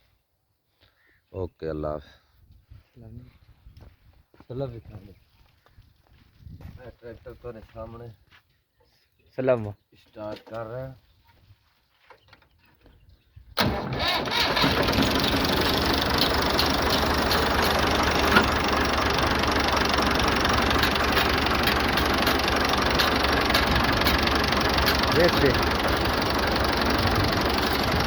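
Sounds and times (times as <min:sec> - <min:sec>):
diesel tractor engine running: 0:13.6 - 0:28.0.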